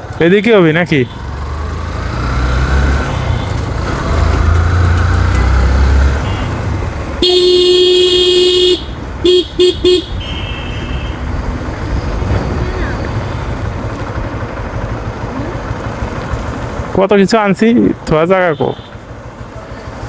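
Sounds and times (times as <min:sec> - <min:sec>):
motorcycle engine rumble: 0:00.0 - 0:20.0
vehicle horn honking: 0:06.2 - 0:11.3.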